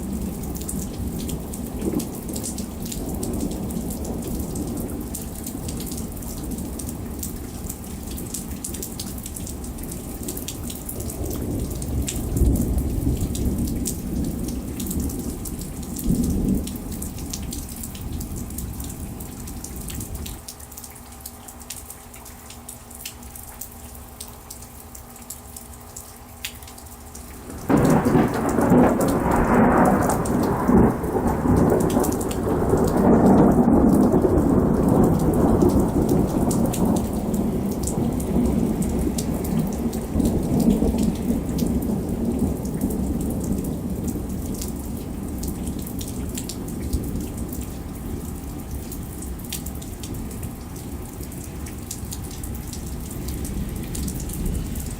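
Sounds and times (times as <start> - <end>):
steady rain: 0.0 - 54.9
thunderclap rumbling: 27.4 - 47.6.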